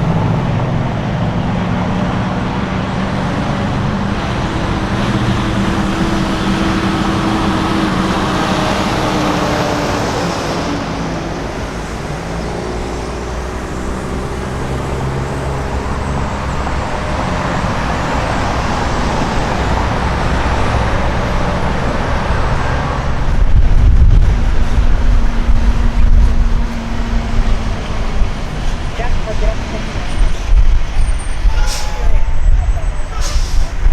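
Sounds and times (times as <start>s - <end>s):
loud low rumble: 0.0s - 33.9s
trucks driving past: 0.0s - 33.9s.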